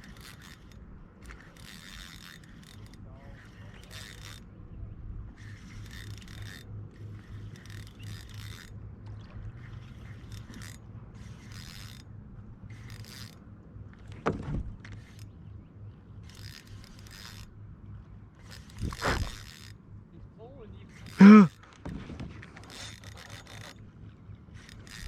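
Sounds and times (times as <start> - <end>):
fishing gear scraping and handling: 18.4 - 19.8, 20.9 - 23.8.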